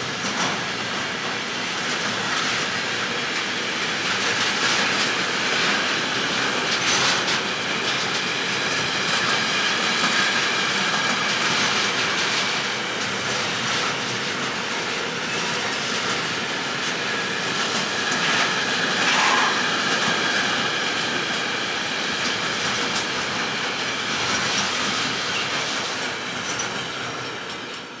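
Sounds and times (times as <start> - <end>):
clickety-clack over rail joints: 0.0 - 28.0
freight train wheels rumbling: 0.0 - 28.0
faint high wheel squeal: 18.3 - 19.8.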